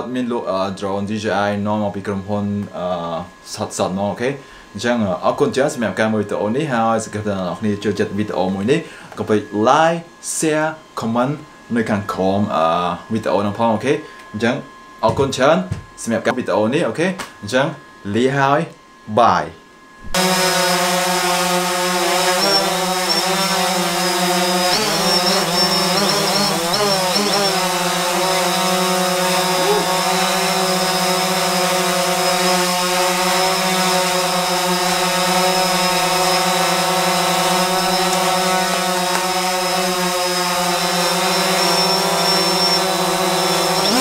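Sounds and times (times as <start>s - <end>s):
drone propellers humming: 20.2s - 44.0s.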